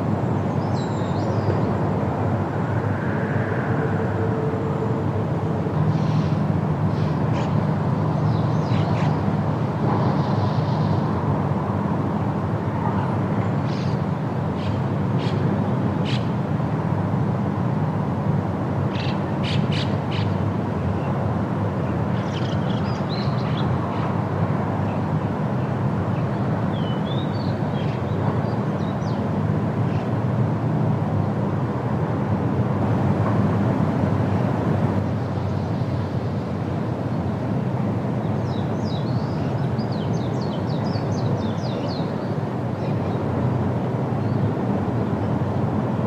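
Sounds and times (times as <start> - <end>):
wind rumbling: 1.6 - 6.9.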